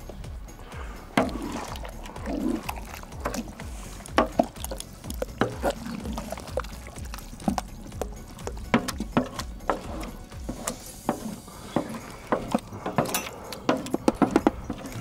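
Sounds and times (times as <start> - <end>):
background music with low beat: 0.0 - 15.0
spoon stirring thick stew: 0.0 - 15.0
spoon knocking against pot: 4.1 - 14.9.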